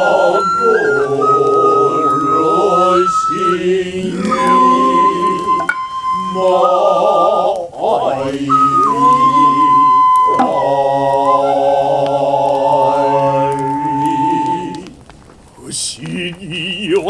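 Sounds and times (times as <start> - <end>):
shrill flute note: 0.0 - 7.5, 8.4 - 14.8
long wavering voices: 0.0 - 15.0
hand drum stroke: 10.2 - 11.2.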